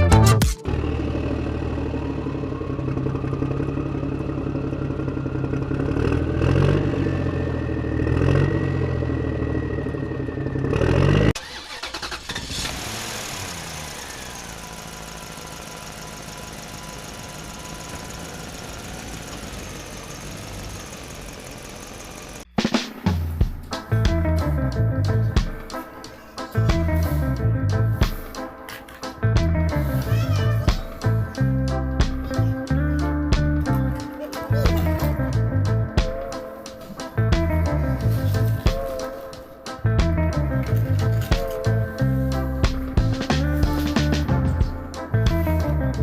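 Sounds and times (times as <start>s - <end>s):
vehicle engine with whine: 0.6s - 22.5s.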